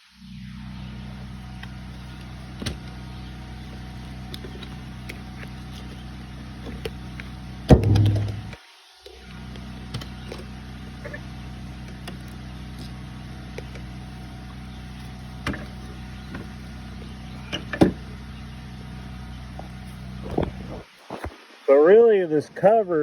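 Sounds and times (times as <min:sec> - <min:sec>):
machine humming: 0:00.0 - 0:21.0
short knocks and clicks: 0:07.7 - 0:08.6.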